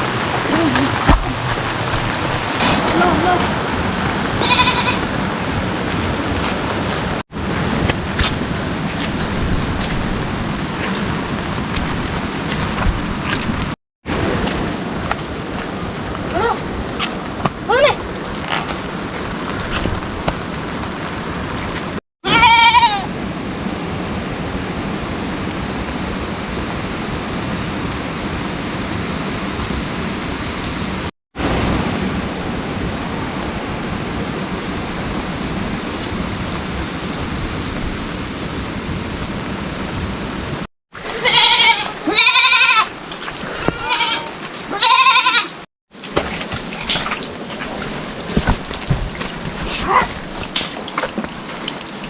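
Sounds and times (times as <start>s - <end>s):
livestock bleating: 4.4s - 5.0s, 22.3s - 23.0s, 41.1s - 42.9s, 43.6s - 45.5s.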